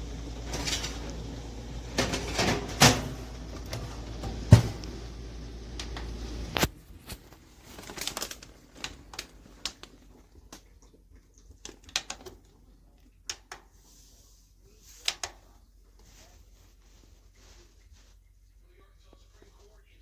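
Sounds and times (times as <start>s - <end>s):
steady hum: 0.0s - 6.8s.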